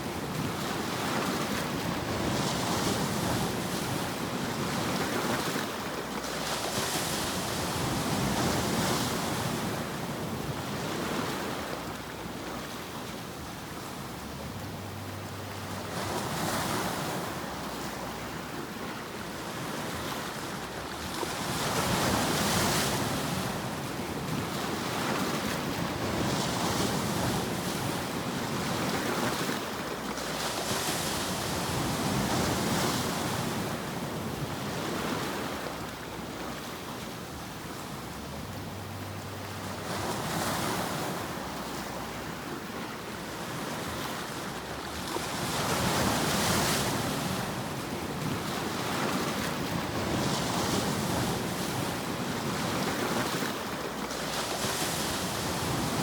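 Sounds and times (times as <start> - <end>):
steady rushing white noise hiss: 11.6 - 19.6, 35.4 - 43.6.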